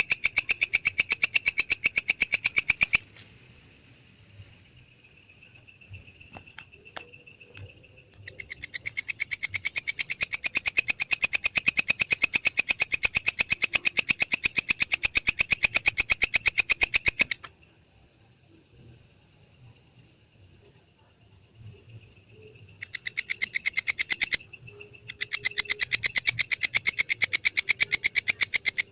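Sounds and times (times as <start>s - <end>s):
katydid trilling clicks: 0.0s - 3.1s, 6.2s - 17.6s, 22.7s - 28.9s.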